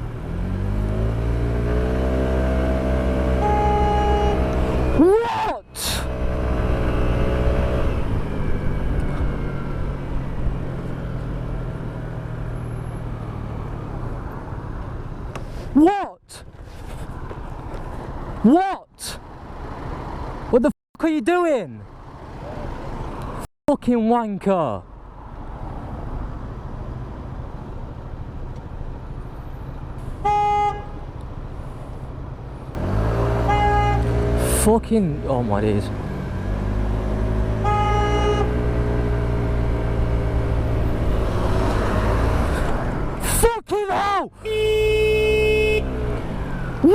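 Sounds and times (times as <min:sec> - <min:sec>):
vehicle horn blast: 0:03.3 - 0:04.5, 0:30.2 - 0:31.0, 0:33.4 - 0:34.2, 0:37.6 - 0:38.6, 0:44.4 - 0:45.9.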